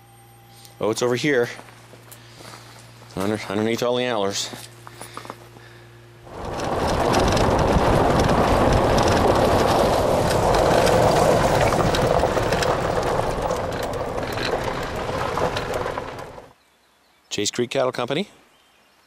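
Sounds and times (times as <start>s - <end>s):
loud rushing noise: 6.3s - 16.5s
scattered crackles: 6.3s - 16.5s.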